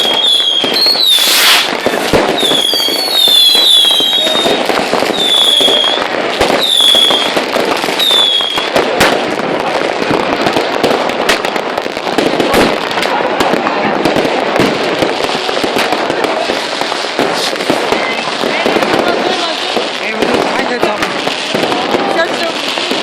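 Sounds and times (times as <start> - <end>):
firework whistles: 0.0 - 9.1, 16.7 - 19.5
firecrackers crackling and banging: 0.0 - 23.0.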